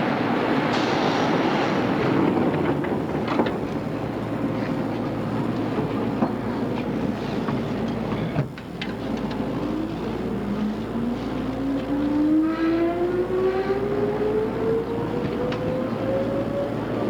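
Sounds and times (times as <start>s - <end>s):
train running noise: 0.0s - 17.0s.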